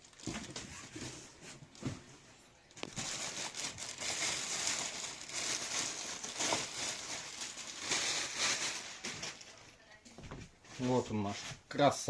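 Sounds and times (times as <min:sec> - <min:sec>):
packaging crinkling: 0:00.0 - 0:01.1, 0:02.8 - 0:09.8.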